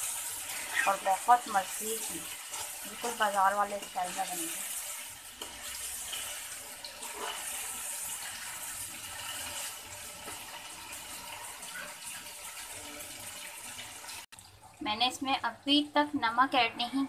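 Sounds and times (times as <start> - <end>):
food sizzling in oil: 0.0 - 17.0
spoon stirring in wok: 2.0 - 8.5.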